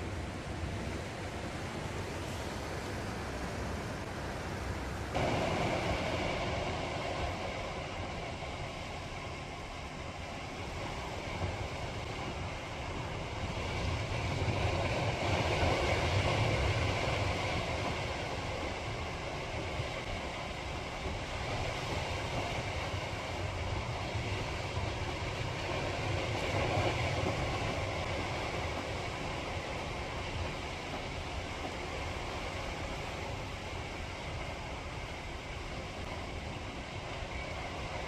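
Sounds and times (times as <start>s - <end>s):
surf washing onto shore: 2.1s - 8.7s.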